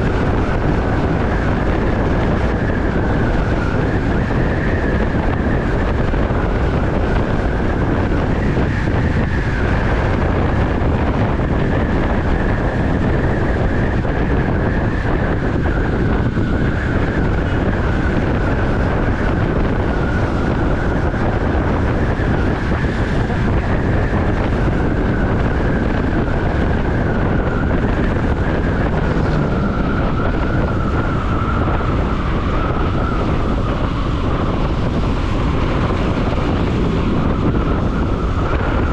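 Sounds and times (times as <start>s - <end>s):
wind rush on microphone: 0.0s - 38.9s.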